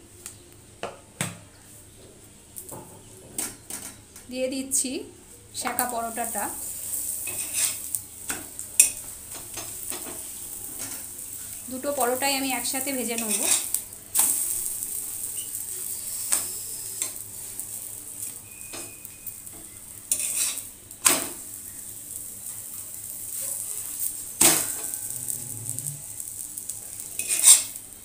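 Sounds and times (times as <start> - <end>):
flatbread sizzling in oil: 4.8 - 28.0
metal spatula scraping griddle: 6.6 - 7.9, 13.1 - 19.4, 20.1 - 20.7, 23.3 - 26.3, 27.2 - 27.8.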